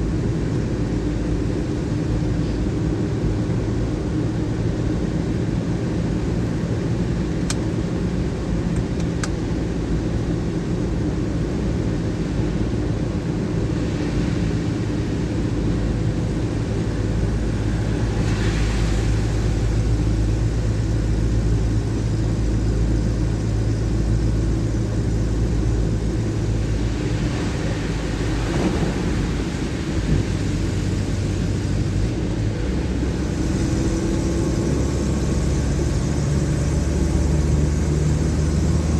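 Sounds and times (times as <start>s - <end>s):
car engine and road hum: 0.0s - 38.9s
rain hiss: 13.6s - 38.9s.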